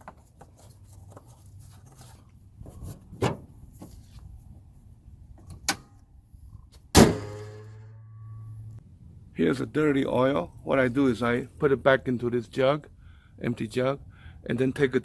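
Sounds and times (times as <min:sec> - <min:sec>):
loud bang with ringing: 0:07.0 - 0:08.8.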